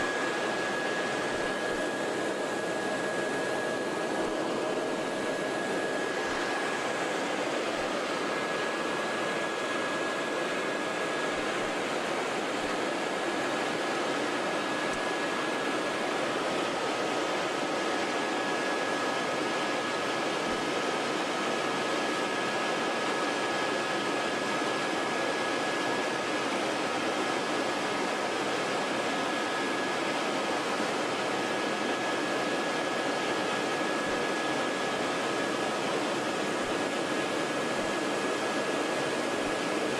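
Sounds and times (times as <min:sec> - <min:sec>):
helicopter cabin rush: 0:00.0 - 0:20.6
lower whine: 0:00.0 - 0:25.6.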